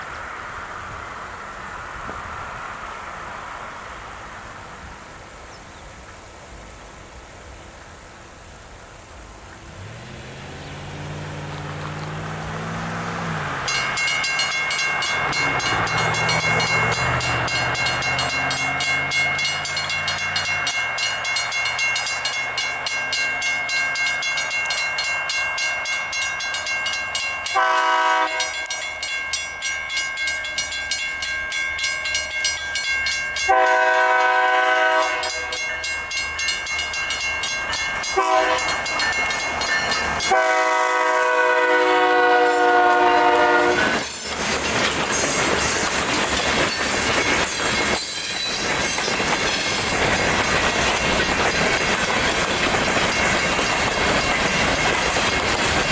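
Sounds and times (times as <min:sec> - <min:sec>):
railroad crossing bells ringing: 0:11.9 - 0:55.9
locomotive horn blasts: 0:27.5 - 0:28.7, 0:33.4 - 0:35.7, 0:38.1 - 0:38.9, 0:40.2 - 0:44.1.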